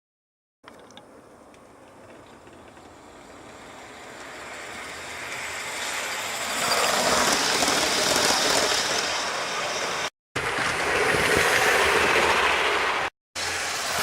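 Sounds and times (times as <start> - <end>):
model train running on track: 2.3 - 14.0.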